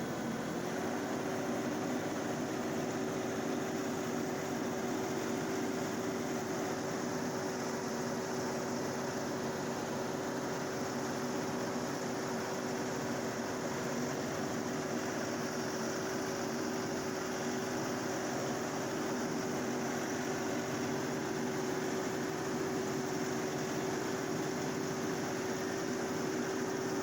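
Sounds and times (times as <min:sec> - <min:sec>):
tractor diesel engine humming: 0:00.0 - 0:07.4.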